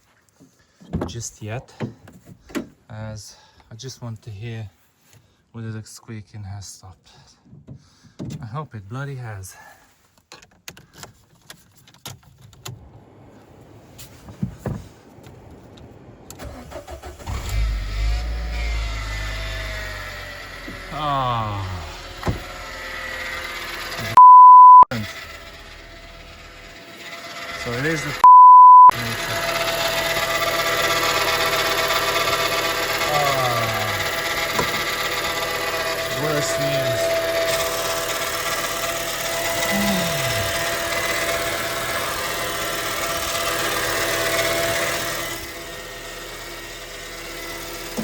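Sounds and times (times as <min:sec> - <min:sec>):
car engine cranking and running: 0:10.2 - 0:24.2, 0:24.9 - 0:28.3, 0:28.9 - 0:48.0
censor bleep: 0:24.2 - 0:24.9, 0:28.2 - 0:29.0.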